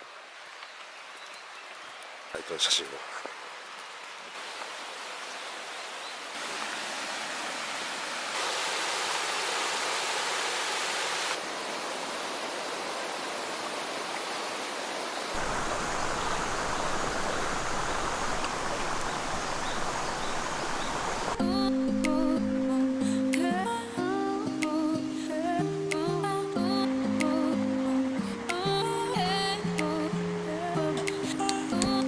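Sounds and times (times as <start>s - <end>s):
shallow river rushing: 2.0s - 21.4s, 26.8s - 32.0s.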